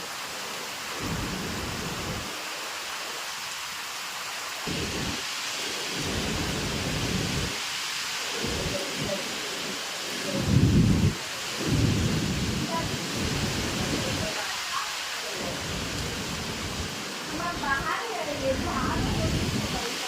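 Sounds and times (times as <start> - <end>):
heavy rain hissing: 0.0 - 20.0
low rumbles: 4.7 - 5.2, 8.4 - 9.2, 10.3 - 14.2.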